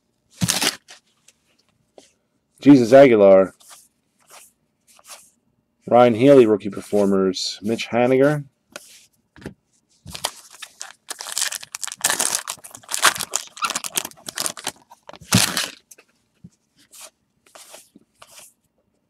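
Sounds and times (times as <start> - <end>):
wrapper tearing and crinkling: 10.1 - 15.8.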